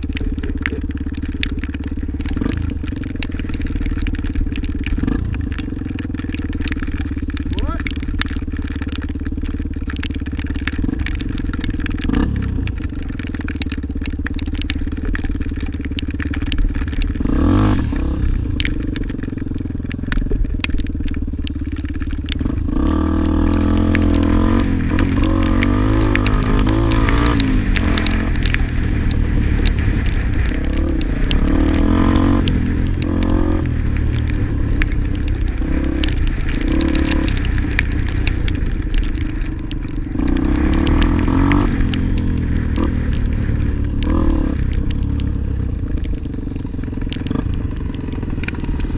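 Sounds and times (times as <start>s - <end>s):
clicks and clatter from trail: 0.0s - 48.9s
dirt bike engine revving: 12.0s - 12.6s, 22.4s - 38.6s, 40.1s - 45.4s.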